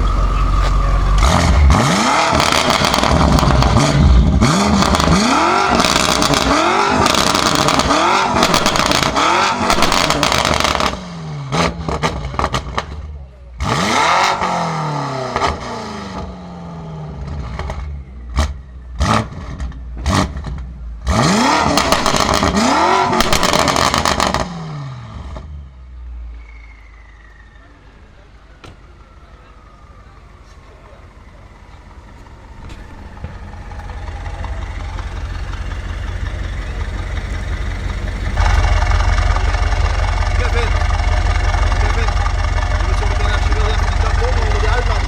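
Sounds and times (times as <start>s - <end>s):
exhaust crackles and pops: 0.0s - 13.8s, 21.5s - 24.5s, 28.6s - 45.0s
car engine revving: 0.0s - 25.4s, 28.1s - 45.0s.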